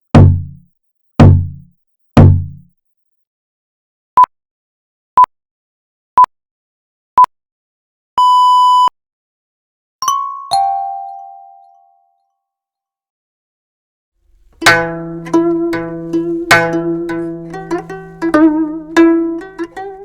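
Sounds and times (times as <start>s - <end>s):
longer electronic beep: 8.2s - 8.9s
short electronic beeps: 8.2s - 8.9s.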